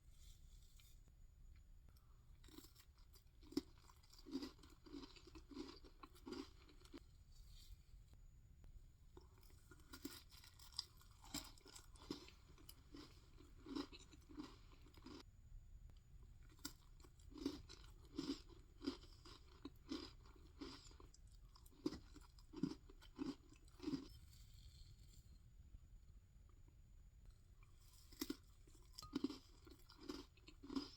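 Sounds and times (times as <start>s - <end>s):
close chewing sounds: 2.4s - 7.0s, 9.2s - 15.2s, 16.3s - 24.2s, 27.6s - 30.9s.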